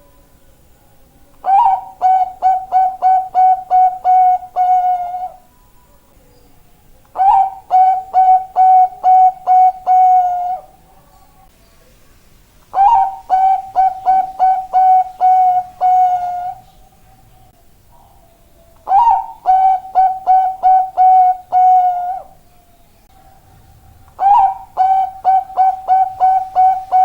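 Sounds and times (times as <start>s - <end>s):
dove cooing: 1.4s - 5.5s, 7.1s - 11.0s, 12.7s - 16.7s, 17.9s - 22.4s, 23.1s - 27.0s.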